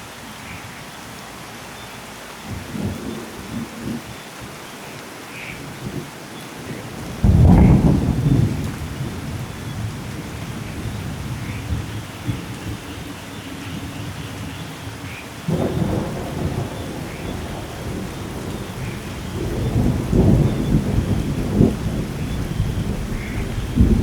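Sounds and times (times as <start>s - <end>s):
heavy rain: 0.0s - 24.0s
low roll of thunder: 7.0s - 13.1s, 15.5s - 24.0s.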